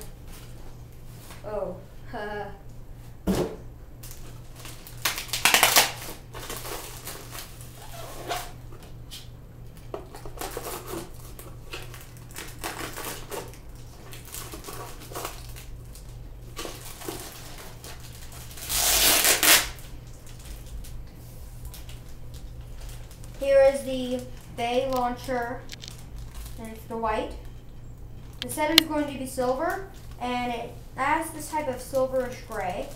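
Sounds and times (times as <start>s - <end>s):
packaging rustling: 4.0s - 8.6s, 10.1s - 26.8s.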